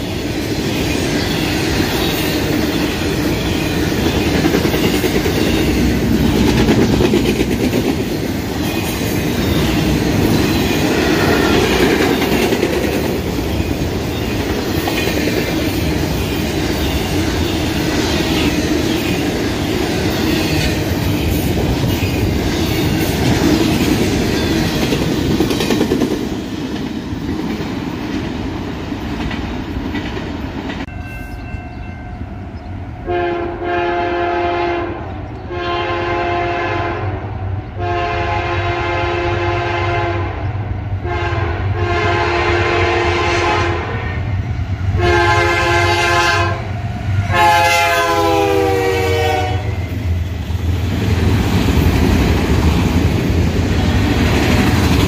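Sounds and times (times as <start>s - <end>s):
freight train rumbling past: 0.0s - 55.0s
train horn: 33.0s - 44.3s, 44.9s - 50.0s.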